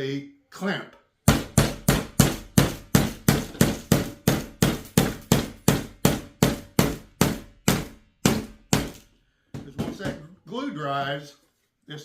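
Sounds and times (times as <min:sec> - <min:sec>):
hammer striking nail into wood: 0:01.2 - 0:09.0.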